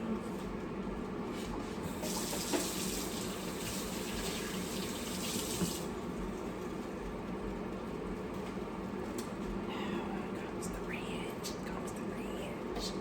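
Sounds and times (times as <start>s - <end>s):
faucet running into sink: 1.9s - 5.9s
steady low hum: 5.8s - 13.0s.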